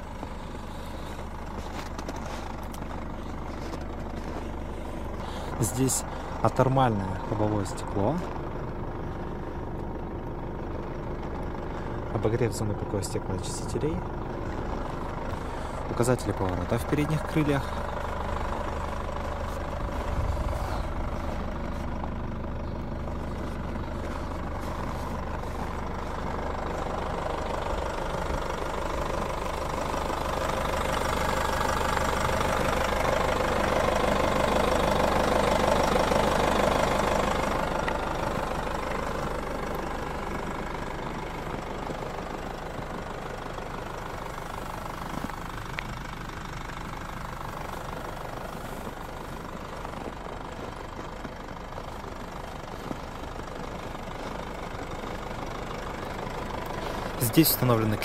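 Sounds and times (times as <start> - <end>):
louder engine sound: 0.0 - 58.0
vehicle engine idling: 0.0 - 58.0.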